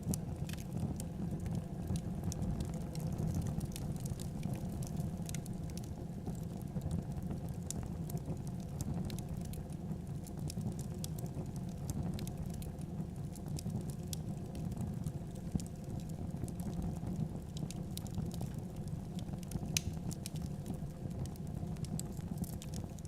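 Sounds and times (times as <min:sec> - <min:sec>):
fireplace fire crackling: 0:00.0 - 0:23.0
sharp pops of fire: 0:19.7 - 0:20.4.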